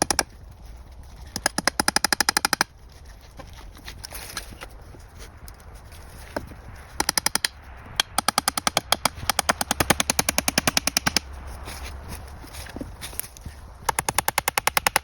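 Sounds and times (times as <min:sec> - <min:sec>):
rapid sharp knocks: 0:07.0 - 0:11.3, 0:13.9 - 0:15.0.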